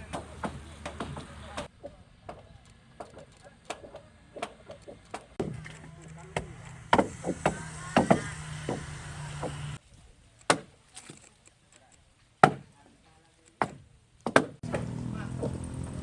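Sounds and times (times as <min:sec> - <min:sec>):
axe chopping wood: 0:06.4 - 0:09.7, 0:10.5 - 0:10.8, 0:12.4 - 0:12.7, 0:13.6 - 0:15.6.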